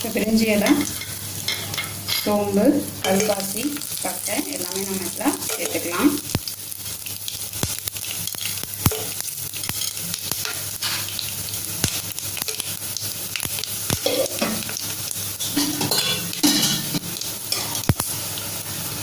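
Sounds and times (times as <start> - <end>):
spices sizzling in hot oil: 0.0 - 19.0
sharp pops and crackles: 6.2 - 15.2, 16.4 - 18.1.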